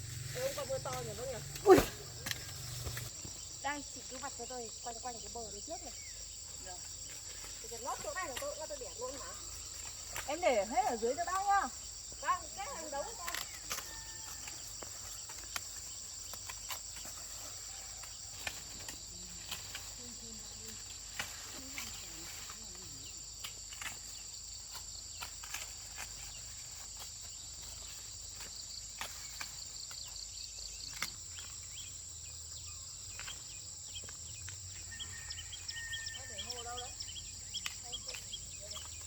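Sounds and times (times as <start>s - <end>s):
insect chorus trilling: 0.0s - 39.0s
maize ears snapping off stalks: 12.8s - 17.2s, 17.9s - 22.7s, 23.4s - 30.2s, 30.9s - 31.6s, 37.5s - 39.0s.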